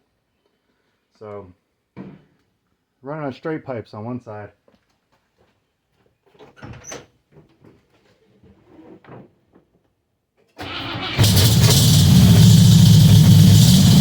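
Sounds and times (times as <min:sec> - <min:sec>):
car engine starting and running: 0:10.6 - 0:14.0.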